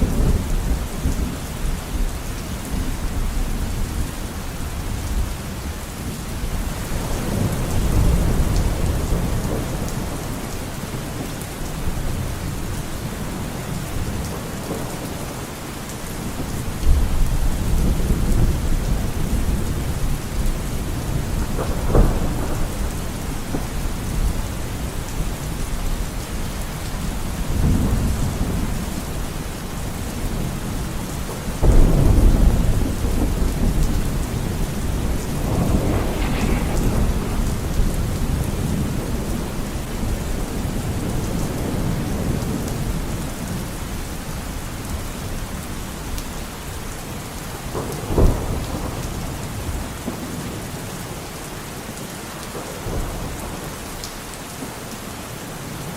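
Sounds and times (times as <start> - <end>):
heavy rain: 0.0 - 55.9
thunder rumbling: 31.2 - 43.5
thunder clap: 31.6 - 42.9.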